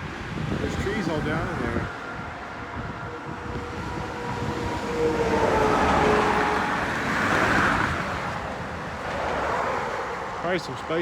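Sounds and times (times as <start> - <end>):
vehicle passing on road: 0.4 - 11.0.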